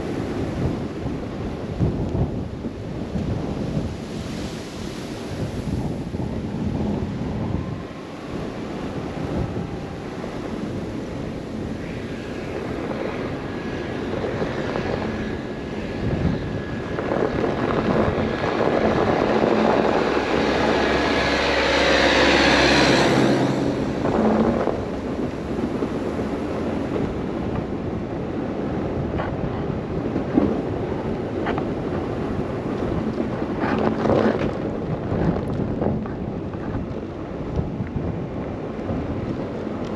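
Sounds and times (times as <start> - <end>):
wind buffeting microphone: 0.0 - 39.9
car driving on snowy road: 8.4 - 39.9.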